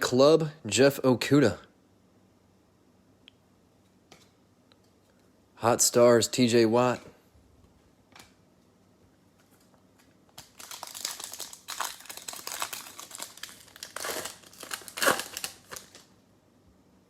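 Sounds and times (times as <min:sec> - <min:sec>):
plastic wrapper tearing and crinkling: 0:10.3 - 0:16.1.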